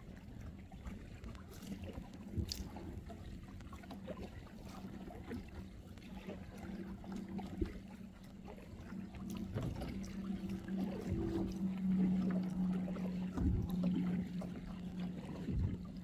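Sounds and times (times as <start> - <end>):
kayak paddle splashes: 0.0 - 16.0
steady low hum: 5.1 - 16.0.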